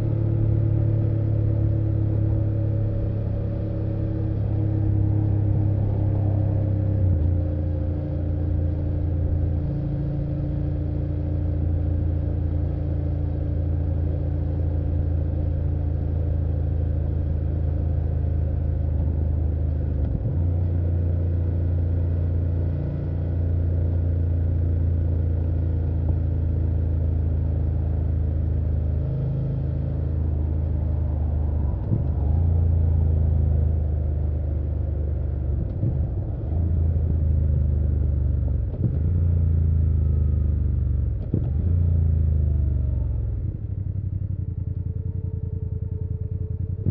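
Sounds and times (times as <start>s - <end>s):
motorcycle engine running: 10.4s - 46.9s.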